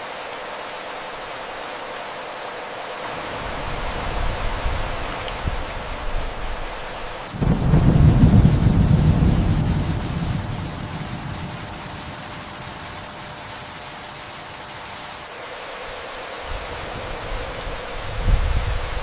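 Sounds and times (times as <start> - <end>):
steady rain hiss: 0.0 - 19.0
thunder rumbling: 7.4 - 12.9.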